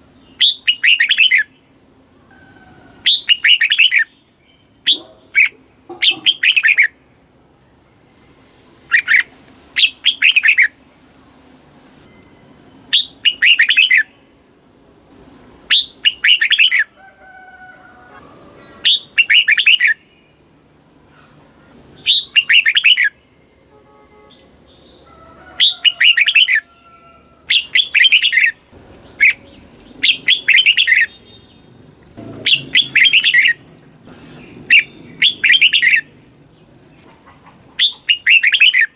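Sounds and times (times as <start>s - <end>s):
bird singing warbled phrases: 0.0s - 1.8s, 3.0s - 7.0s, 8.9s - 10.8s, 12.2s - 14.4s, 15.7s - 17.0s, 18.6s - 23.6s, 25.6s - 26.7s, 27.4s - 38.9s
faint low bird calls: 25.0s - 38.9s.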